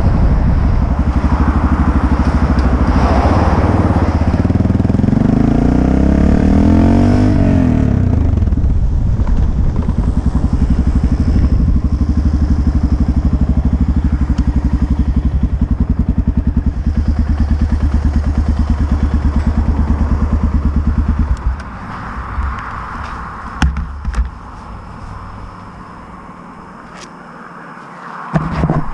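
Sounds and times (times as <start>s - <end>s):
motorcycle engine idling: 7.9s - 21.7s
sharp clicks and knocks: 22.4s - 24.4s.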